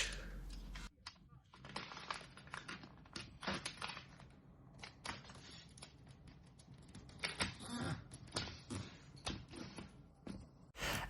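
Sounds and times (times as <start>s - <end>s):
paper rustling: 0.7s - 7.1s.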